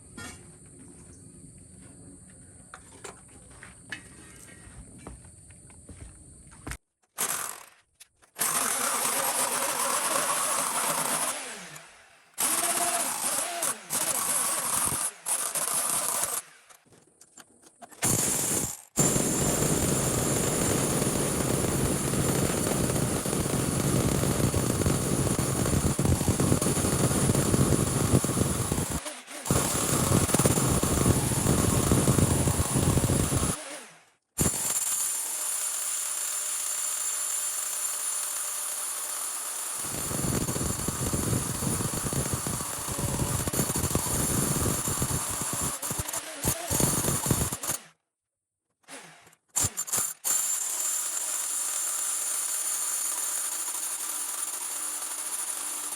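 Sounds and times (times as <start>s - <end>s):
demolition hammer chiselling rock: 8.3s - 11.8s, 12.4s - 16.8s, 18.0s - 33.6s, 34.4s - 47.9s, 48.9s - 55.9s.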